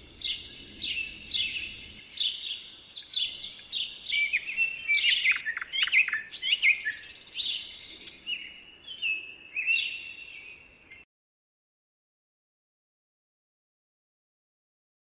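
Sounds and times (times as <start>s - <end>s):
songbirds chirping and singing: 0.0s - 11.1s.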